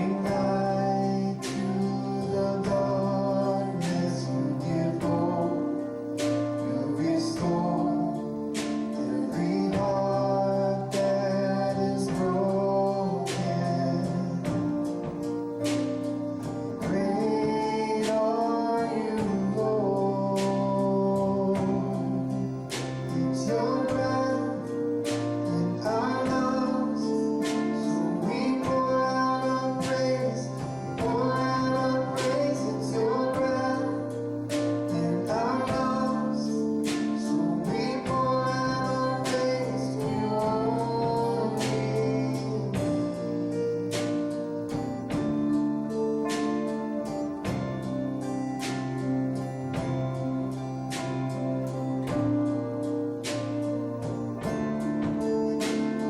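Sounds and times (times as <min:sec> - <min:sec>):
held chords of worship music: 0:00.0 - 0:56.0
strummed guitar: 0:00.0 - 0:56.0
woman singing: 0:37.3 - 0:43.2.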